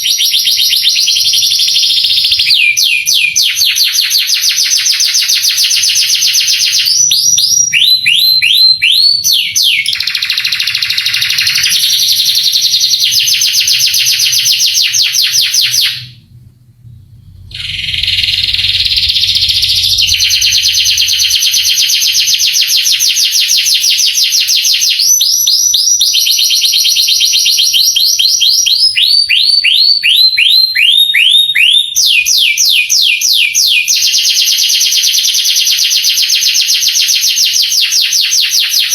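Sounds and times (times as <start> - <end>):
canary singing trills: 0.0 - 16.2, 17.4 - 26.0.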